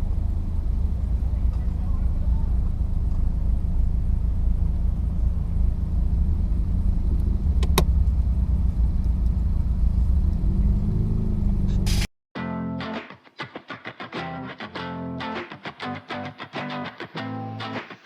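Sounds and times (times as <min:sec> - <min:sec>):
car engine rumble: 0:00.0 - 0:12.1
road and wind noise: 0:00.0 - 0:12.1
sharp click: 0:07.6 - 0:07.9
guitar music: 0:12.4 - 0:18.0.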